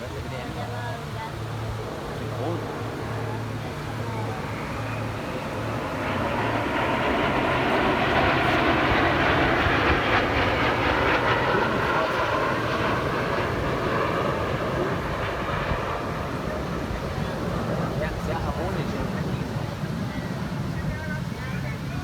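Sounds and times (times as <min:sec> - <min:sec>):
aircraft engine roar: 0:00.0 - 0:22.0.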